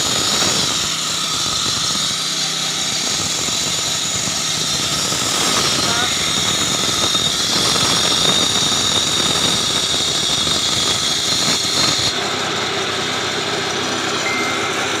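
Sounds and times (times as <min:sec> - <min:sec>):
concrete cutting machine: 0:00.0 - 0:15.0
high whine: 0:13.8 - 0:15.0.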